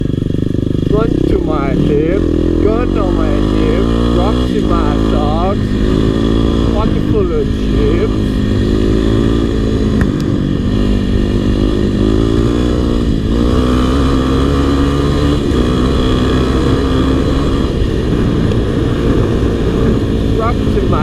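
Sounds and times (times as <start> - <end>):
dirt bike engine running: 0.0 - 21.0.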